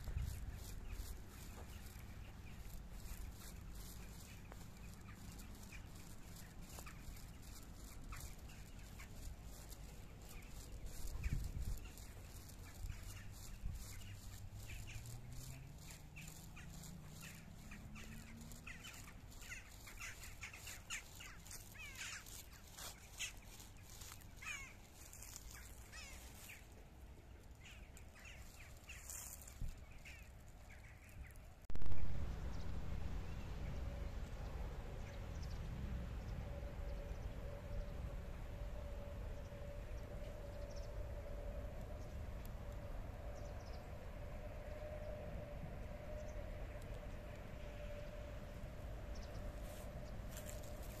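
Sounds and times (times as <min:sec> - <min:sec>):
birds calling: 0:00.0 - 0:26.8, 0:27.5 - 0:31.4
rising low hum: 0:00.0 - 0:30.0, 0:31.7 - 0:51.0
steady low rumble: 0:00.0 - 0:51.0.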